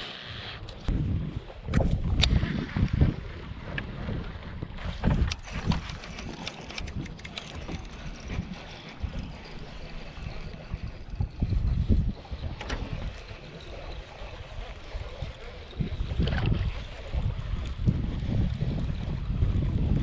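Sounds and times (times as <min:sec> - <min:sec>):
wind buffeting microphone: 0:00.6 - 0:20.0.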